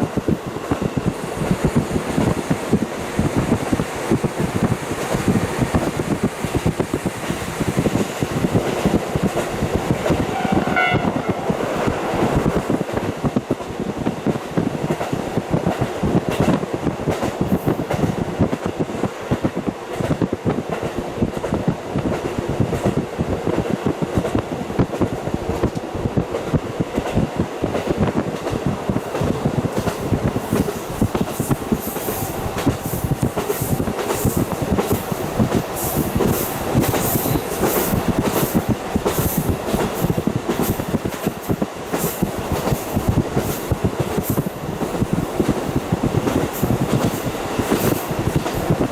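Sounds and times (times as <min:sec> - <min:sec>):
wheels rumbling on rail: 0:00.0 - 0:48.9
wind rushing: 0:00.0 - 0:48.9
train horn: 0:10.2 - 0:11.6.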